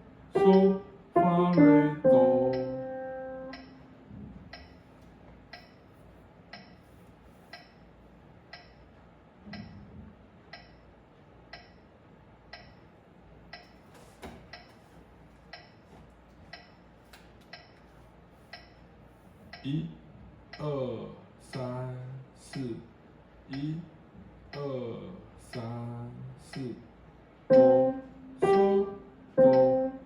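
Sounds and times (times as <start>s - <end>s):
metronome ticking: 0.4s - 3.8s, 6.5s - 6.8s, 8.5s - 8.8s, 10.5s - 10.8s, 11.5s - 11.8s, 12.5s - 12.8s, 27.5s - 30.0s.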